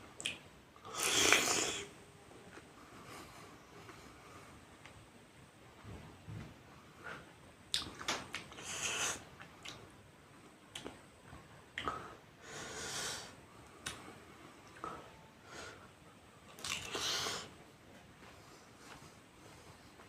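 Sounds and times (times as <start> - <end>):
lip smacks: 0.2 - 1.8, 7.7 - 9.8, 10.7 - 11.0, 13.8 - 14.0, 16.6 - 17.1
breathy hisses: 8.6 - 9.3, 12.4 - 13.4, 16.8 - 17.6.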